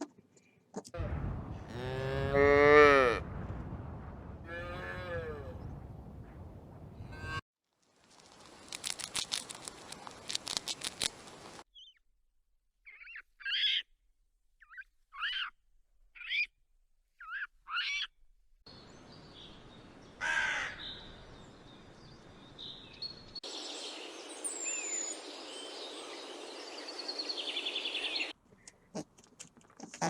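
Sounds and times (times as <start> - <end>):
bird chirps and trill: 12.8 - 13.9, 14.6 - 15.6, 16.2 - 16.5.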